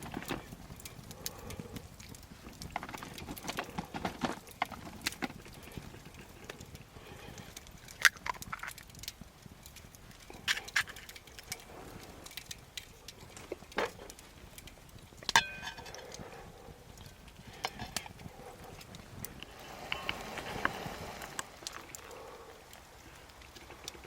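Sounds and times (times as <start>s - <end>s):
metallic clink: 15.3s - 16.1s.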